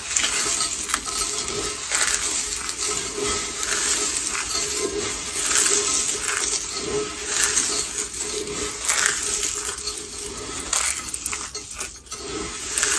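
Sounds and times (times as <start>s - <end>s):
soap crackling: 0.0s - 12.9s
soap crunching: 0.0s - 12.9s.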